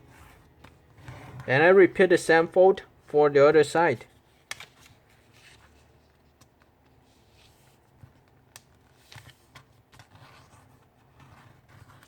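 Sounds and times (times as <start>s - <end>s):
paper rustling being folded: 4.0s - 12.0s.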